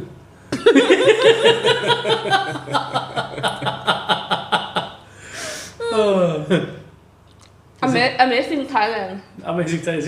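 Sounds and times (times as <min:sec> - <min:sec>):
person laughing hard: 0:00.6 - 0:05.0
breath in: 0:05.0 - 0:05.8.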